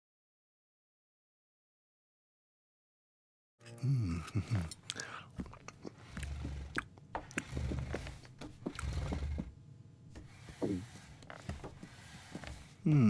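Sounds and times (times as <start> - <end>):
cartoon chewing: 4.2 - 7.7.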